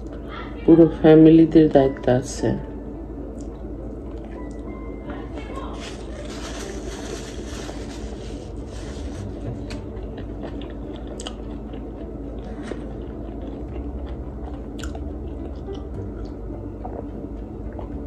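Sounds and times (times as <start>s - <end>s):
low room hum: 0.0s - 18.0s
person chewing food: 5.8s - 18.0s.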